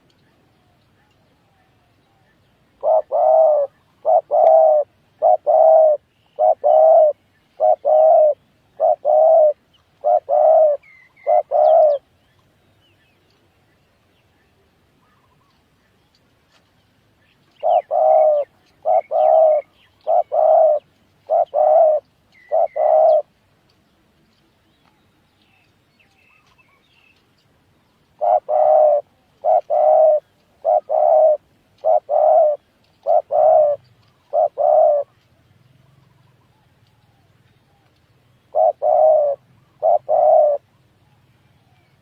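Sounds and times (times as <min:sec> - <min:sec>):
dove cooing: 0:02.8 - 0:12.1, 0:17.6 - 0:23.3, 0:28.2 - 0:37.9, 0:38.5 - 0:40.8.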